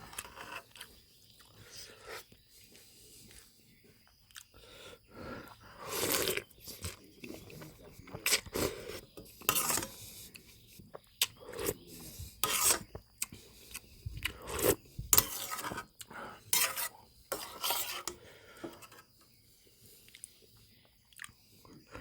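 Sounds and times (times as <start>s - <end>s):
rasping and rubbing noises: 0.0s - 0.9s, 5.7s - 19.1s
eating sounds: 4.2s - 16.4s, 20.0s - 22.0s.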